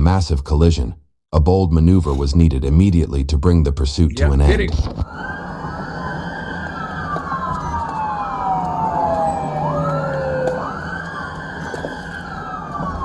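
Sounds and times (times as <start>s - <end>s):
police sirens wailing: 5.1s - 13.0s.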